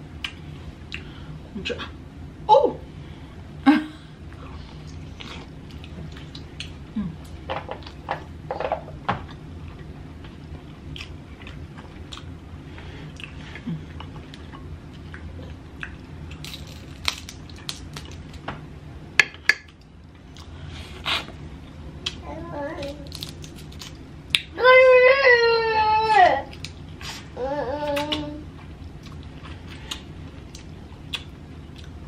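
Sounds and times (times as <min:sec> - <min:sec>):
low steady hum: 0:00.0 - 0:32.0
chewing and lip smacks: 0:04.8 - 0:06.8, 0:10.9 - 0:12.3, 0:13.1 - 0:18.2, 0:28.0 - 0:32.0.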